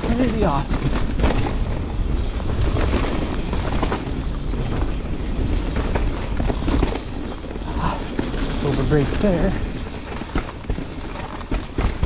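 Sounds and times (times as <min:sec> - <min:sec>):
bike knocks and rattles: 0:00.0 - 0:12.0
tyres rolling on dirt: 0:00.0 - 0:12.0
wind buffeting microphone: 0:00.0 - 0:12.0.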